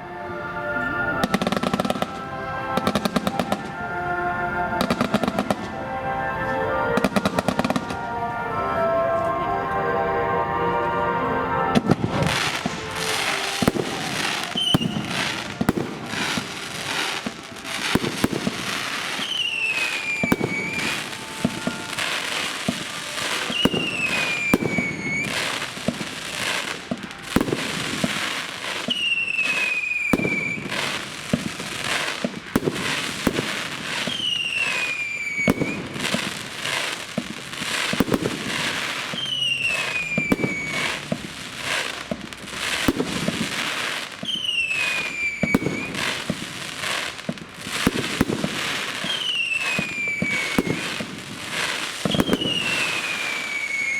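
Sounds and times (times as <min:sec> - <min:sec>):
fireworks bangs and crackling: 0:00.8 - 0:53.9
falling firework whistle: 0:11.6 - 0:53.9.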